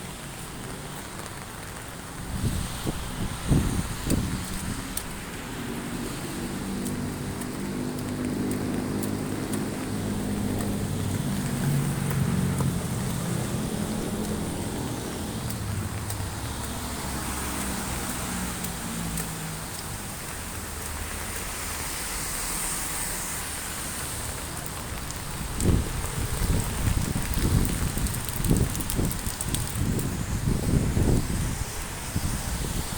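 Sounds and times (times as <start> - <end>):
rain hissing: 0.0 - 32.9
vehicle engine humming: 4.8 - 22.0.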